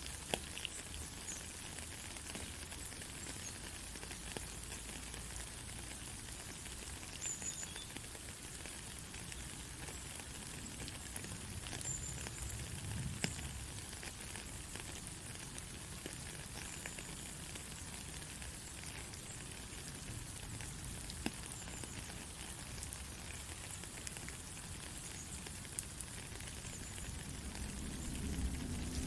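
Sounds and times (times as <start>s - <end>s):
steady rain falling: 0.0s - 29.0s
low rumbling undertone: 27.2s - 29.0s.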